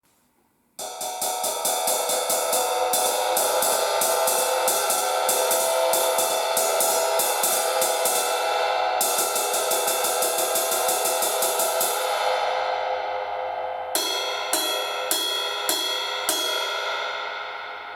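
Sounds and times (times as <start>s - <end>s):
cymbal struck with stick: 0.8s - 17.9s.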